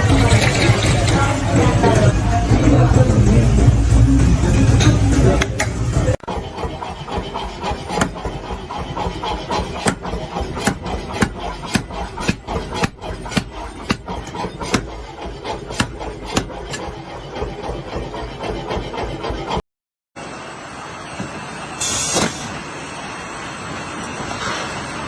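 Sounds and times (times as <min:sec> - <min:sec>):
steady background noise: 0:00.0 - 0:17.8
sharp knocks: 0:09.8 - 0:15.0, 0:15.7 - 0:16.9.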